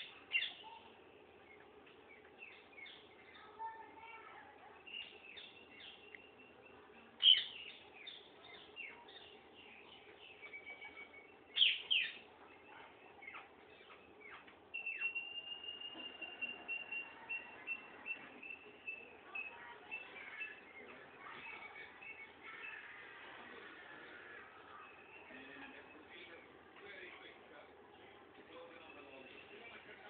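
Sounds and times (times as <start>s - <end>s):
parrots chirping and calling: 0.0s - 0.9s, 7.0s - 26.4s.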